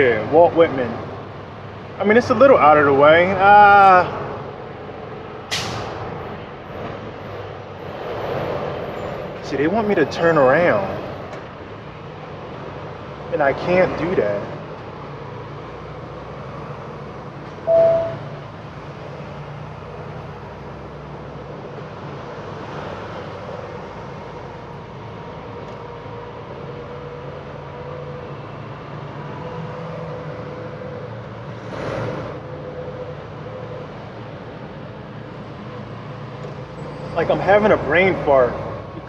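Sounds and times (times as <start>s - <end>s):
road noise: 0.0s - 39.0s
truck engine hum: 0.0s - 39.0s
short loud beep: 17.6s - 18.4s.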